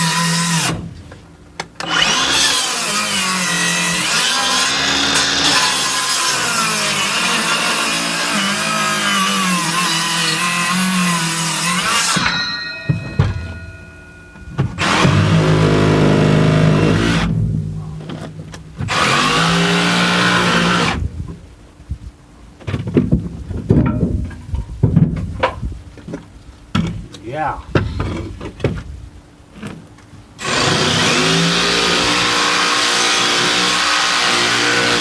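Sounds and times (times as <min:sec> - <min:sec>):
power tool cutting: 0:00.0 - 0:00.8, 0:01.8 - 0:12.5, 0:14.7 - 0:17.4, 0:18.8 - 0:21.0, 0:30.4 - 0:35.0.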